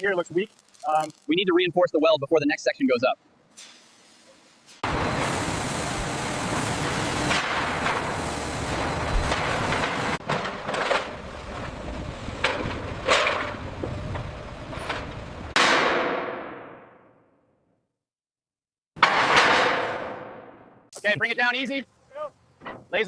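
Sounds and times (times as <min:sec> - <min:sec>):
dense metalworking hiss: 0:03.5 - 0:10.2.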